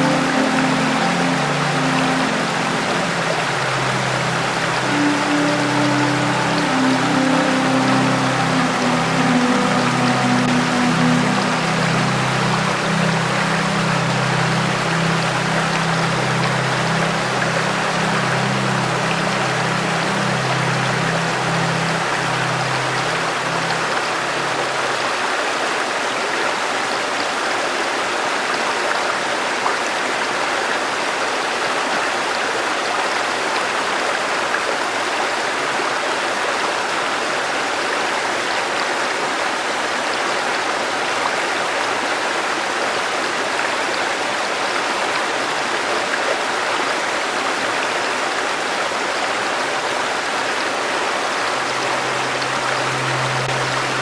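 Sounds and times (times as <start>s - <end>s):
low held musical tone: 0.0s - 25.4s, 51.1s - 54.0s
river water rushing: 0.0s - 54.0s.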